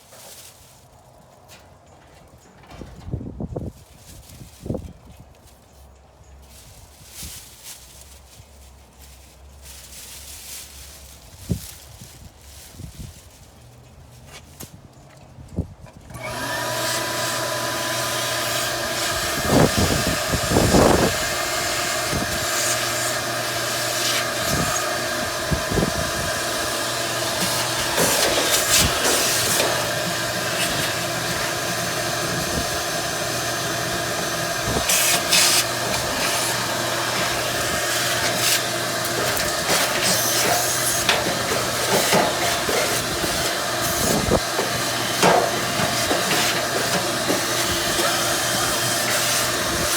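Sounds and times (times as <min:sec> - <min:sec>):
nozzle knocking and scraping: 0:01.4 - 0:03.5, 0:16.0 - 0:49.9
vacuum cleaner whining: 0:16.1 - 0:49.9.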